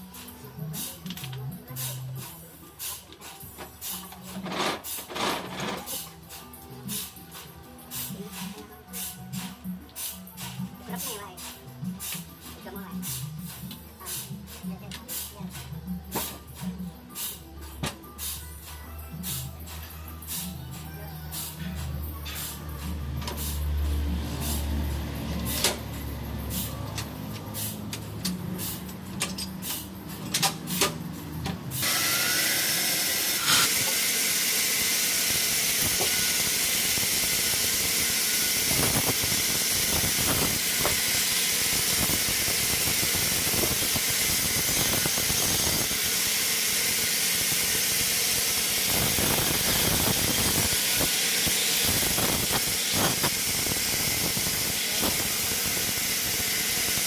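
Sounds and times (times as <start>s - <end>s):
saw cutting through log: 31.8s - 43.0s.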